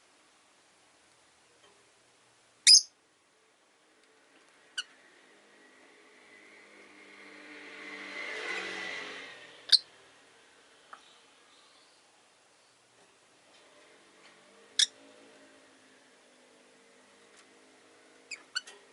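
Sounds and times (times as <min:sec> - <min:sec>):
lovebirds high chirps: 0:02.6 - 0:03.0
car passing outside: 0:03.9 - 0:11.8, 0:13.4 - 0:18.9.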